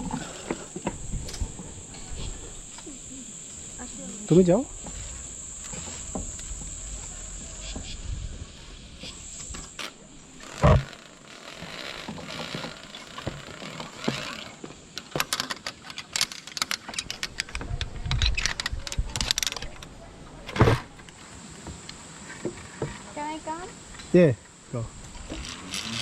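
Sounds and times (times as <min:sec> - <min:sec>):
crickets buzzing: 0:00.0 - 0:26.0
quick clicks and rattles: 0:09.7 - 0:19.9.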